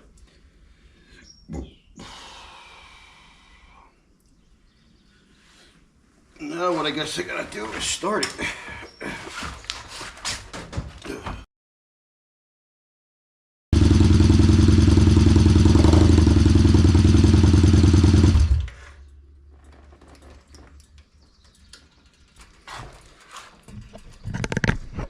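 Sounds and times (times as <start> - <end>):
motorcycle engine running: 13.8 - 18.9.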